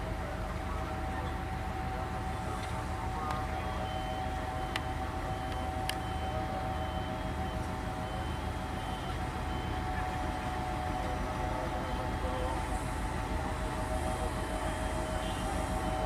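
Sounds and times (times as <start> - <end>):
train rumbling: 0.0 - 16.0
faint high beep: 3.6 - 9.9.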